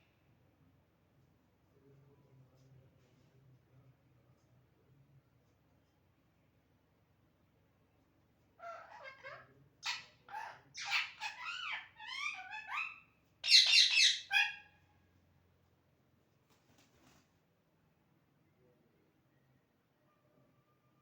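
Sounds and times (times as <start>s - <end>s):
parrot chattering calls: 8.6s - 14.6s
parrot squawks: 8.6s - 14.7s.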